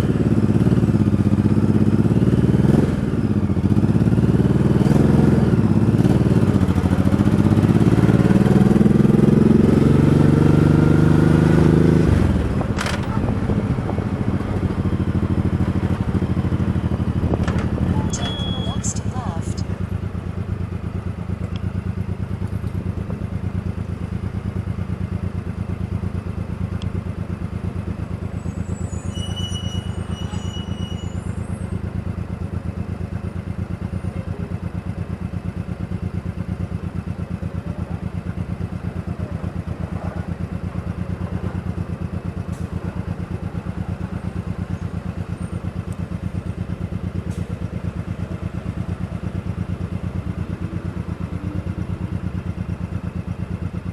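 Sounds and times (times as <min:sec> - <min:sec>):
motorcycle engine running: 0:00.0 - 0:28.5, 0:31.6 - 0:53.9
brief high-pitched tone: 0:18.0 - 0:19.7.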